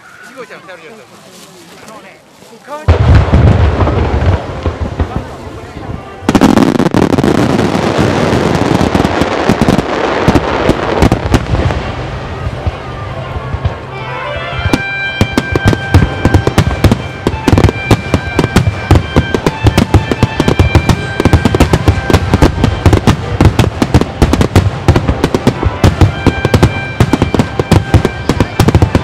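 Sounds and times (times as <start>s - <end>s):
fireworks bursting: 1.8s - 29.0s
music: 12.4s - 29.0s.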